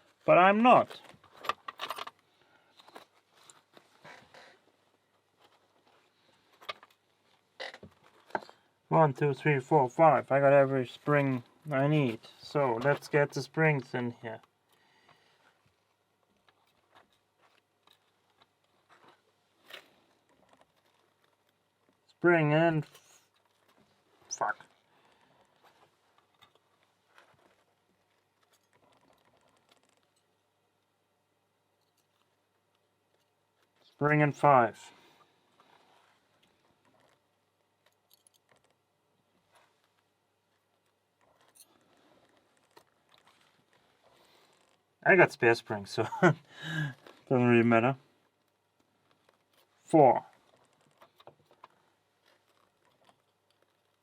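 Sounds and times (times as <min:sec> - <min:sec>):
small lock parts clicking: 0:01.3 - 0:03.6, 0:28.1 - 0:30.4, 0:36.8 - 0:38.9
soft rubbery rub: 0:38.5 - 0:45.0, 0:48.0 - 0:54.0.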